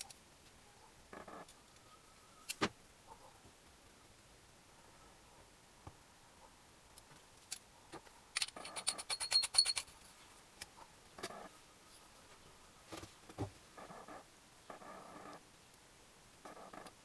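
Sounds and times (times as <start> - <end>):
metal tools handled on workbench: 8.4 - 9.9.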